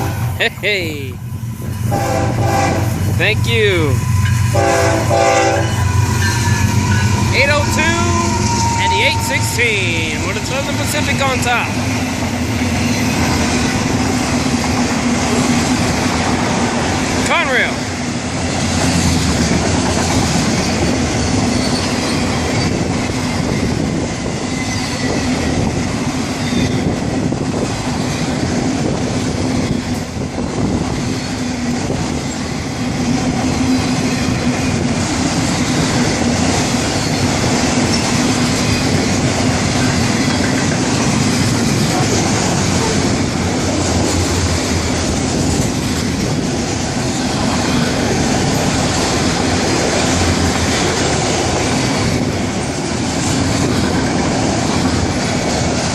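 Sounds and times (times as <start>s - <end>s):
train wheels rumbling on rails: 0.0s - 55.9s
wheel squeal: 21.4s - 23.7s, 24.4s - 25.5s, 26.4s - 26.9s, 37.0s - 38.2s
wheels clattering over rail joints: 31.0s - 55.9s.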